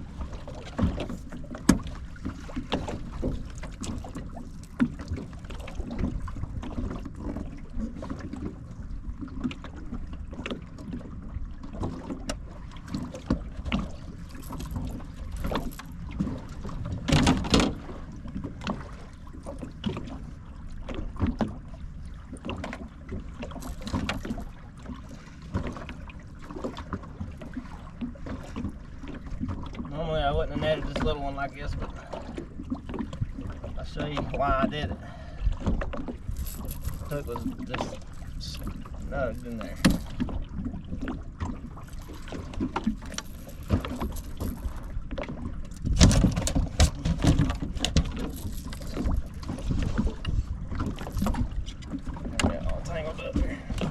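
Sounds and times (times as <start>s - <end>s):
knocks and clicks in a boat: 0.0s - 53.9s
water sloshing: 0.0s - 53.9s.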